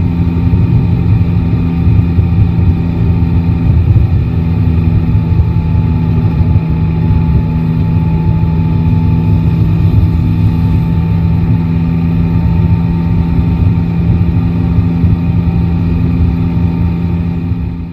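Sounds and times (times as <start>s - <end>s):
motorcycle engine running: 0.0s - 17.9s.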